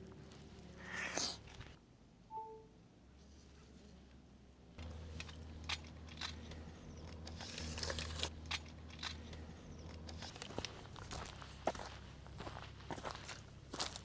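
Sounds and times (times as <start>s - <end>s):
steady low hum: 0.0s - 14.0s
crunching and crinkling: 4.8s - 14.0s.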